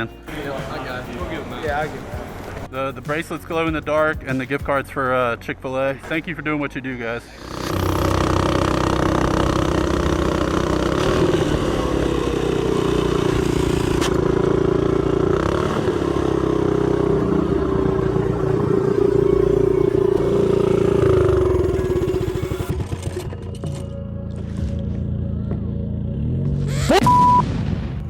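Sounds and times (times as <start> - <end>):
motorcycle engine running: 7.3 - 27.0.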